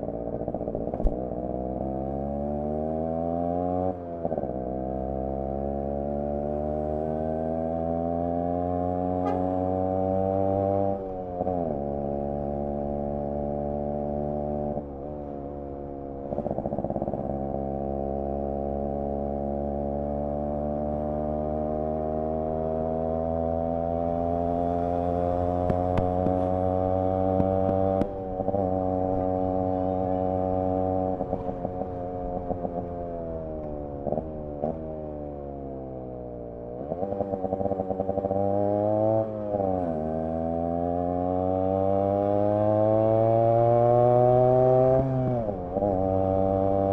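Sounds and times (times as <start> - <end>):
two-stroke motorcycle engine revving: 0.0 - 15.1, 16.2 - 46.9.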